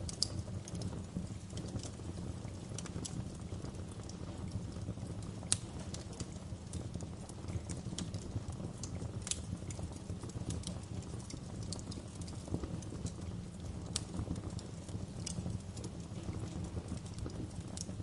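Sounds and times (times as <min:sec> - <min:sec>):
loud fire snaps: 0:00.0 - 0:18.0
wood fire crackling: 0:00.0 - 0:18.0.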